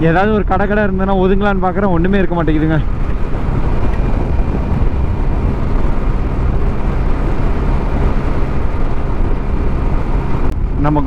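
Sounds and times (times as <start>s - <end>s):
road noise: 0.0s - 11.0s
wind rush over microphone: 0.0s - 11.0s
scooter engine: 2.1s - 10.8s.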